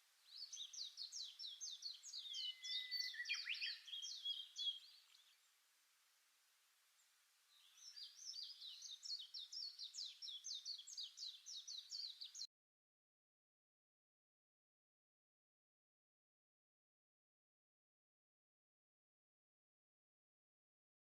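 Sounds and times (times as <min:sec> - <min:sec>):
songbirds chirping: 0:00.0 - 0:12.5.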